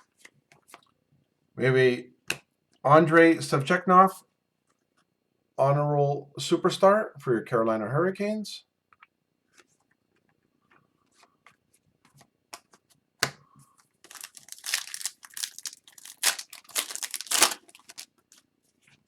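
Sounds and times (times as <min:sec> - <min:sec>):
card pack wrapper crinkling and tearing: 0:14.0 - 0:18.5.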